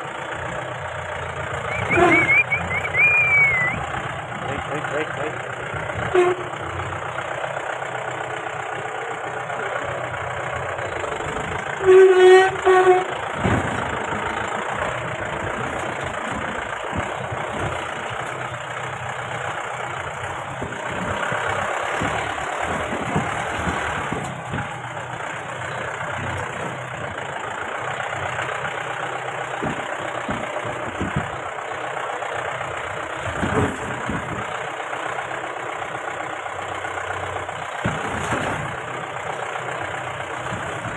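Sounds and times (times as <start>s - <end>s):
car engine running: 0.0s - 40.9s
short loud steady tones: 1.7s - 3.8s.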